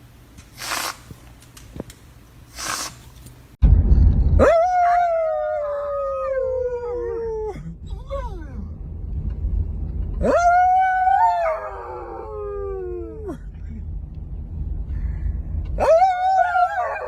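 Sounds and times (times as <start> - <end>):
low rumble: 3.6 - 17.0
dog howling: 4.4 - 7.6, 10.2 - 13.4, 15.8 - 17.0.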